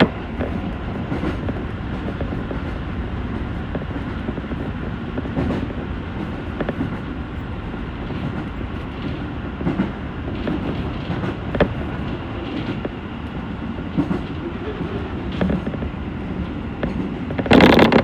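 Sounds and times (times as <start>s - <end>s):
electric train rumbling: 0.0s - 18.0s
wheels clacking over rail joints: 16.6s - 18.0s.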